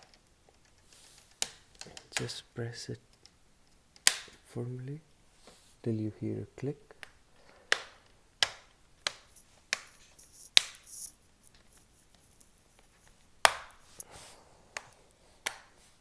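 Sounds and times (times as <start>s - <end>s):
plastic clips clicking into place: 3.1s - 4.4s.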